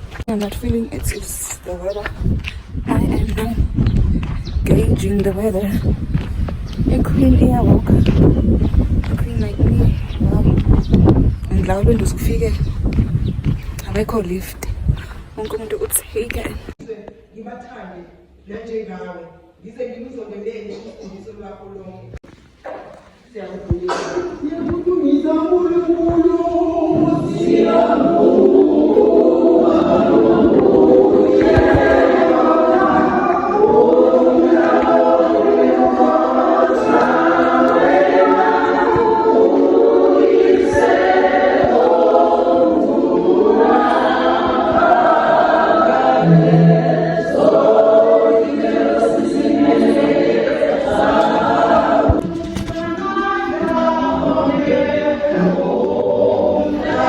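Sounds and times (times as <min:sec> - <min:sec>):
choir singing a hymn: 0:01.0 - 0:03.9, 0:04.6 - 0:12.9, 0:23.4 - 0:57.0.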